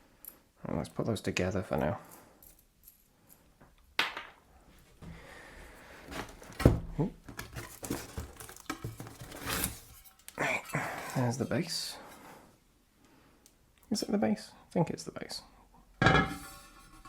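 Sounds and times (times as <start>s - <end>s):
packaging rustling and scraping: 6.0s - 11.5s.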